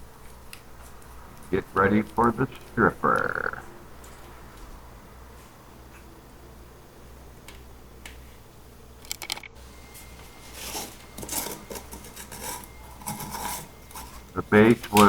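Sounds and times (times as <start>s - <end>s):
small hard parts clattering: 9.0s - 15.0s.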